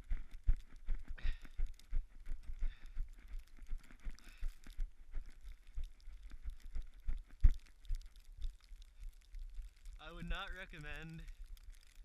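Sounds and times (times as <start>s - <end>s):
running footsteps in snow: 0.0s - 8.2s.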